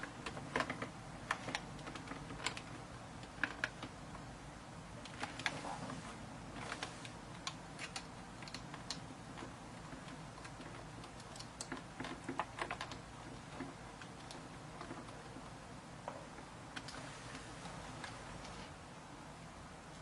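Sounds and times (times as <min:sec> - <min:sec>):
plastic parts clicking: 0:06.6 - 0:15.4.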